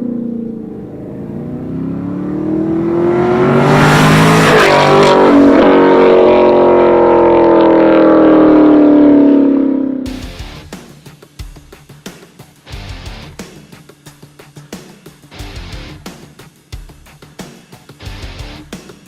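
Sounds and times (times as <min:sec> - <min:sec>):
car engine accelerating: 0:00.0 - 0:10.6
rush of noise: 0:00.0 - 0:10.6.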